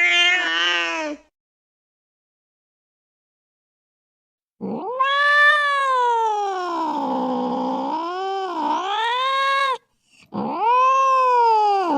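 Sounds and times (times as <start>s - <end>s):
cat yowling: 0.0s - 1.2s, 4.6s - 11.9s.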